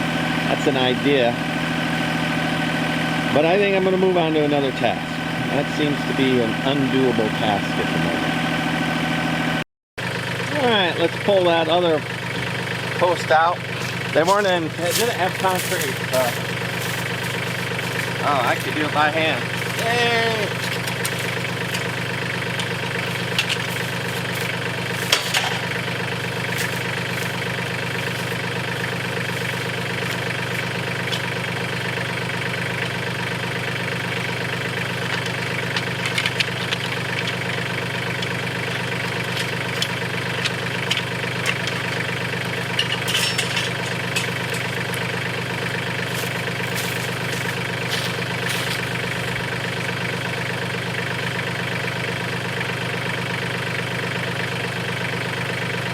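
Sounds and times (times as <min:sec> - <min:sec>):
tractor diesel engine running: 0:00.0 - 0:55.9
sharp knocks and clanks: 0:19.5 - 0:28.6, 0:34.8 - 0:45.2.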